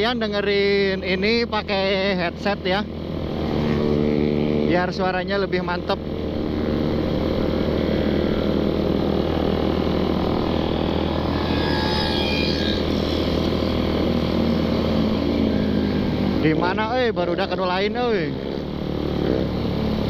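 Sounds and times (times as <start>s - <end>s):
loud motorcycle exhaust: 0.0s - 20.0s.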